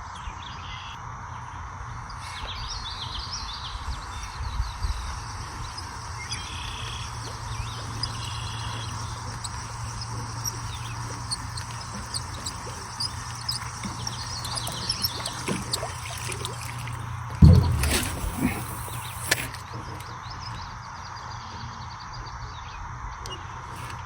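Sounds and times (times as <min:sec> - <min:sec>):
small birds chirping: 0:02.1 - 0:19.5
low rumble: 0:17.4 - 0:19.3.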